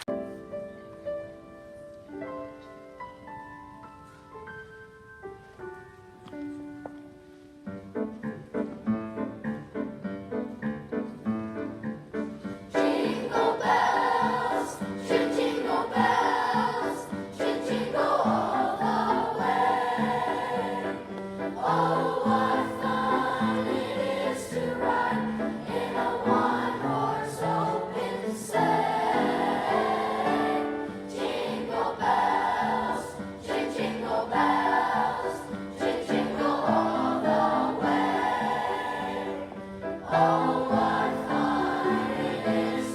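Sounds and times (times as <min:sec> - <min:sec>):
choir singing: 0:12.7 - 0:42.9.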